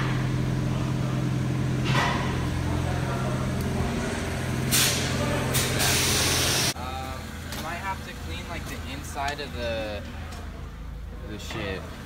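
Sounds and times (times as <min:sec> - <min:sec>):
vehicle engine idling: 0:00.0 - 0:12.0
loud hissing bursts: 0:04.7 - 0:06.8.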